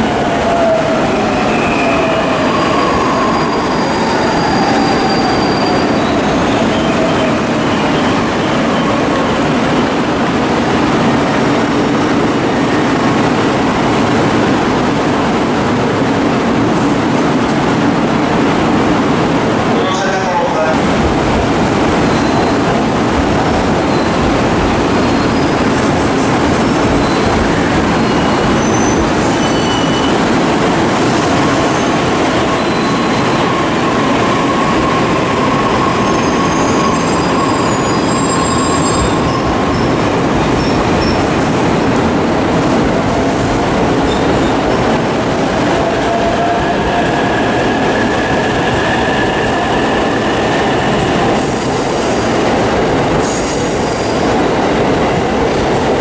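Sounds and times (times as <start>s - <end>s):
train wheels rumbling on rail: 20.7s - 56.0s.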